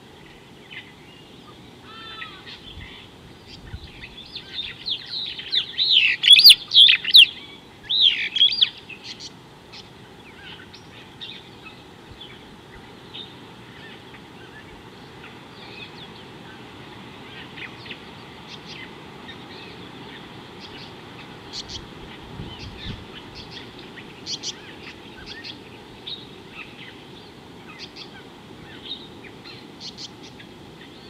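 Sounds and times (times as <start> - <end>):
low background hiss: 0.0 - 31.0
faint bird chirps: 0.3 - 16.6
small birds whistling: 1.3 - 12.5, 17.3 - 27.0.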